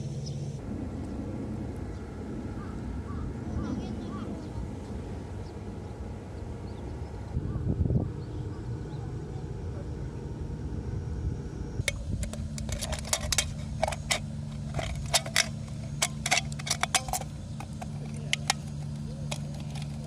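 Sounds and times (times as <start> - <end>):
metal utensils clinking on cookware: 11.9 - 20.0.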